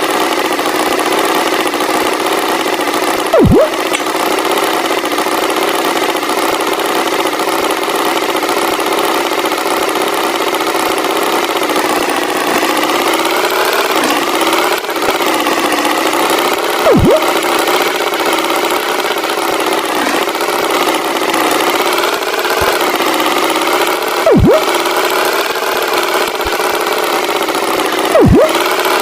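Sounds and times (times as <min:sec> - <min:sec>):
cartoon tractor engine: 0:00.0 - 0:29.0
loud falling and rising glide: 0:03.4 - 0:04.0, 0:16.9 - 0:17.5, 0:24.3 - 0:24.8, 0:28.2 - 0:28.6.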